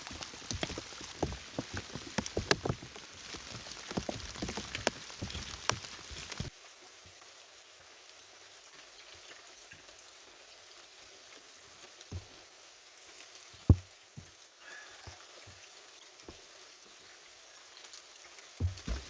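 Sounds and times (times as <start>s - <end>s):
short low knocks: 18.6s - 19.0s.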